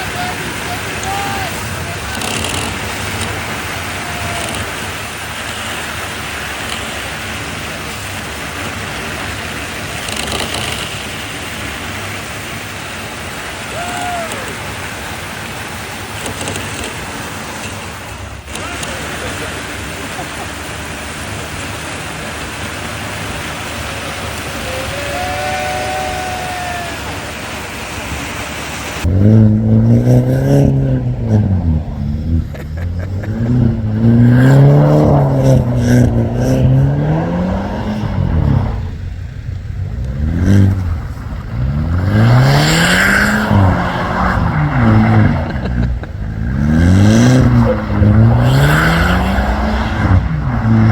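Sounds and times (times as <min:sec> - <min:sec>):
vehicle engine revving hard: 0:00.0 - 0:50.9
wind and snow rushing: 0:19.3 - 0:50.9.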